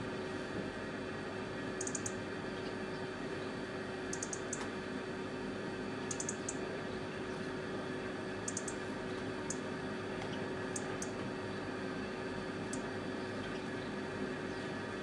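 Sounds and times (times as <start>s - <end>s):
songbird calling: 1.8s - 2.7s, 4.1s - 4.6s, 6.1s - 6.6s, 8.5s - 8.8s
low hum: 1.8s - 4.7s, 8.4s - 11.6s.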